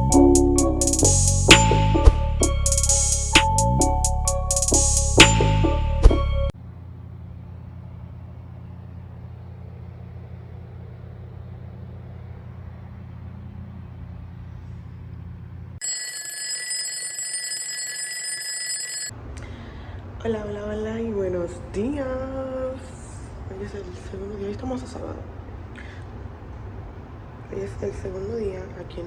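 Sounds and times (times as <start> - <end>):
electronic alarm ringing: 15.8 - 19.1.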